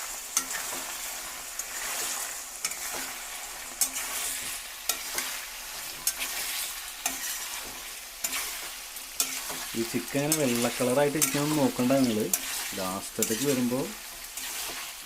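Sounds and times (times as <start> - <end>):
chicken sizzling in oil: 0.0 - 15.0
spatula scraping a pan: 0.0 - 15.0.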